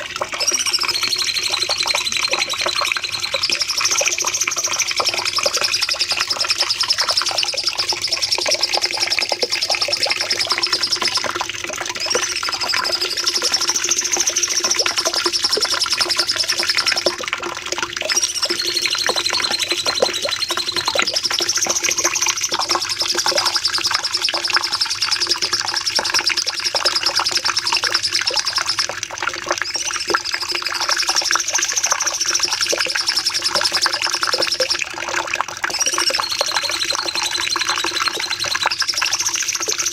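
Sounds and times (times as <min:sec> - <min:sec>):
bird singing rapid chattering song: 0:00.4 - 0:11.2, 0:18.1 - 0:28.8.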